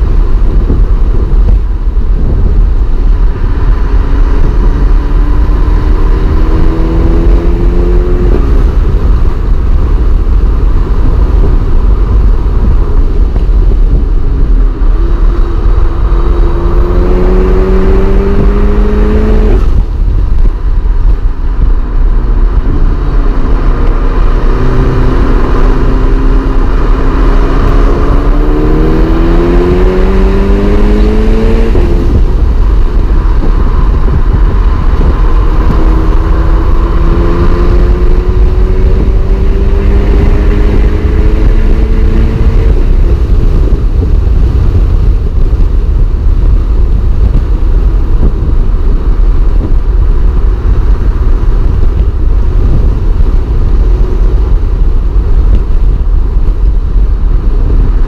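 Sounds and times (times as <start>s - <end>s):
low rumble of road noise: 0.0s - 58.0s
car engine revving from inside: 2.2s - 19.9s, 22.3s - 47.6s.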